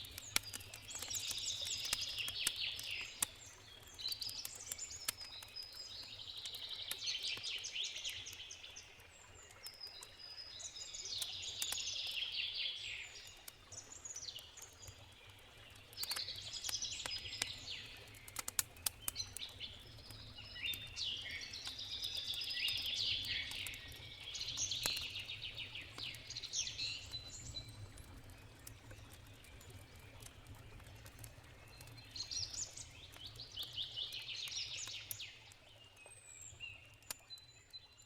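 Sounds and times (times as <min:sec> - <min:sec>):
campfire crackling: 0:00.0 - 0:37.4
songbirds warbling: 0:14.0 - 0:30.3.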